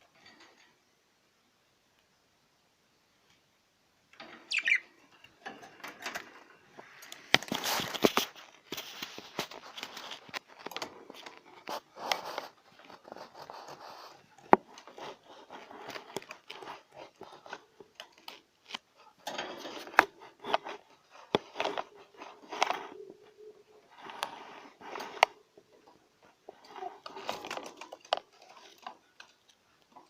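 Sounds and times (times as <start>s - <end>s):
budgerigar warbling: 4.5s - 4.8s.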